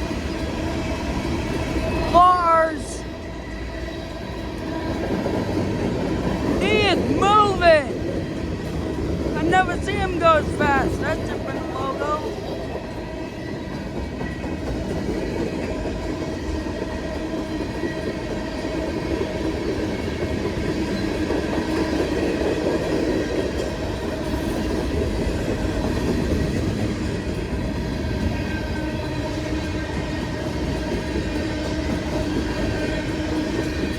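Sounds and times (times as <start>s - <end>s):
freight train rumbling past: 0.0s - 33.9s.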